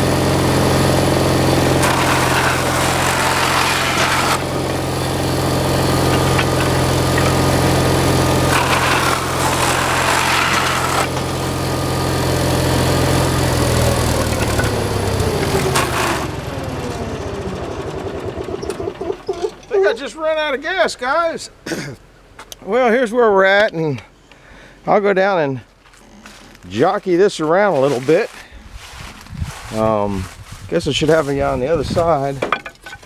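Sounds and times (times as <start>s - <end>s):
saw cutting into wood: 0.0s - 17.5s
engine winding down whine: 0.0s - 20.1s
chop saw engine running: 0.0s - 20.6s.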